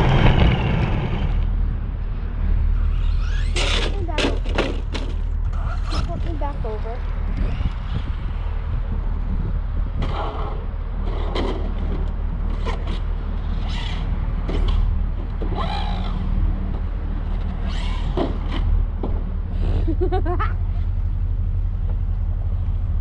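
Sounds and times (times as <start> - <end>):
low rumble: 0.0 - 17.5
radio-controlled truck motor bursts: 13.5 - 14.8, 15.6 - 16.2, 17.4 - 18.7.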